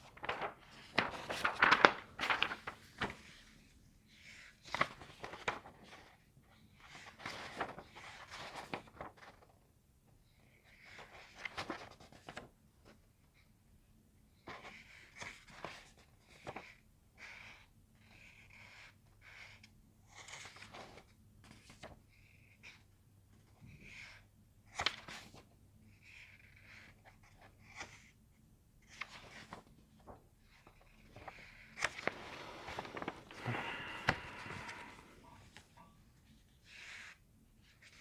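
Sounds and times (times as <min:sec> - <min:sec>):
paper rustling: 0:00.0 - 0:06.2, 0:06.8 - 0:09.6, 0:10.7 - 0:13.0, 0:20.1 - 0:22.0, 0:23.4 - 0:28.1, 0:28.8 - 0:38.0
small handling noises: 0:00.0 - 0:09.6, 0:28.8 - 0:38.0.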